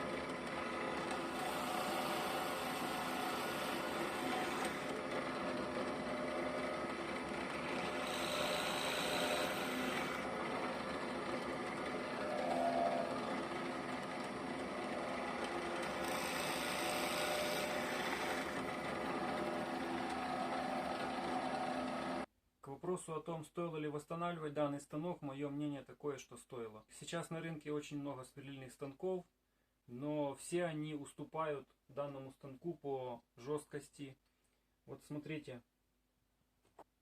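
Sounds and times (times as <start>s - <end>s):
drill press motor humming: 0.0s - 22.3s.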